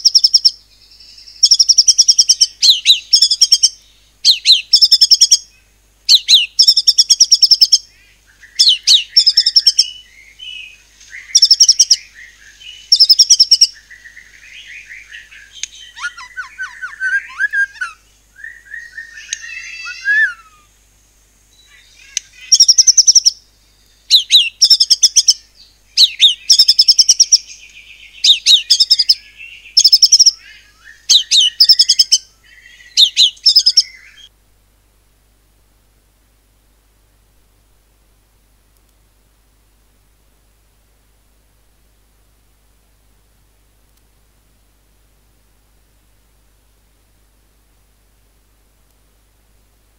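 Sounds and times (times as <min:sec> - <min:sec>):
bird soft warbled phrases: 0:15.4 - 0:18.1, 0:18.9 - 0:20.7, 0:21.6 - 0:23.2
songbird rapid high notes: 0:15.7 - 0:18.1.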